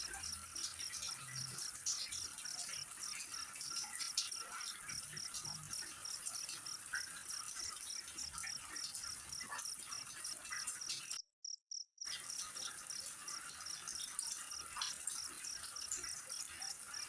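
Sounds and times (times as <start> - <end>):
small ticks: 0.0 - 17.0
crickets chirping: 2.8 - 16.2.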